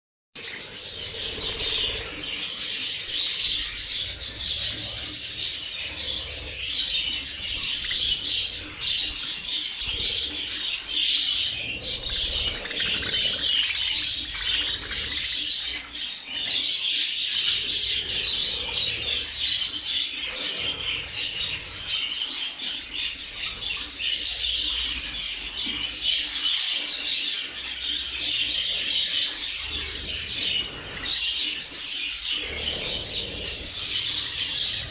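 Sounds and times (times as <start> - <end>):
flock of budgerigars chattering: 0.4 - 34.9.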